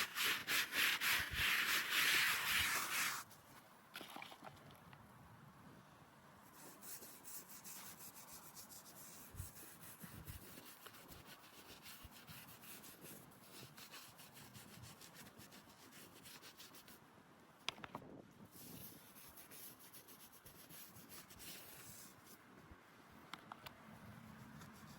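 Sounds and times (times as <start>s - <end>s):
brush scrubbing stone: 0.0s - 3.3s, 6.6s - 17.0s, 18.6s - 22.3s.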